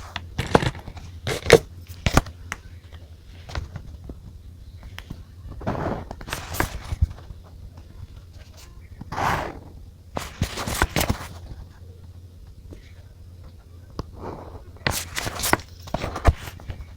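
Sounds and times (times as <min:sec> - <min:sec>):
paper rustling: 0:04.9 - 0:11.8, 0:14.3 - 0:16.9.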